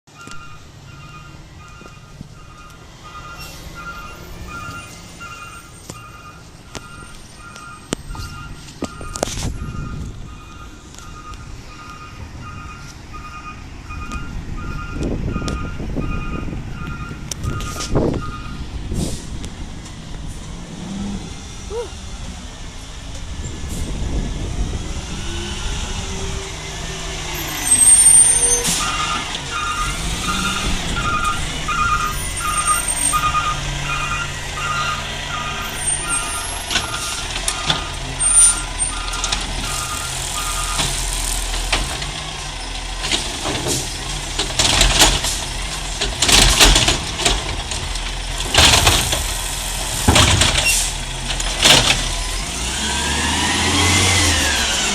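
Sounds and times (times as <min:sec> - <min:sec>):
truck reversing alarm beeping: 0:00.1 - 0:18.8, 0:25.0 - 0:43.1
diesel engine running: 0:00.6 - 0:54.9
air brake hiss: 0:18.9 - 0:19.4.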